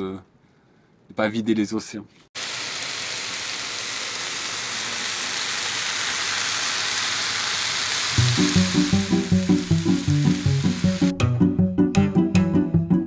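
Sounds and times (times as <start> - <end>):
vegetables sizzling in a pan: 2.4 - 11.1
music: 8.2 - 13.0.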